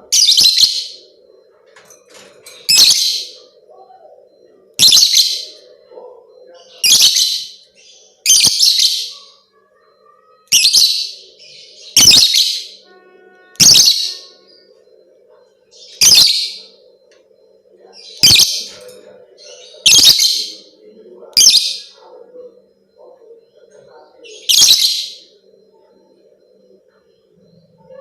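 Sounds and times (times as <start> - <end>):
lovebird high-pitched calls: 2.7 - 3.4, 10.4 - 11.1, 11.9 - 12.8, 13.6 - 14.4, 15.8 - 16.6, 19.8 - 20.5.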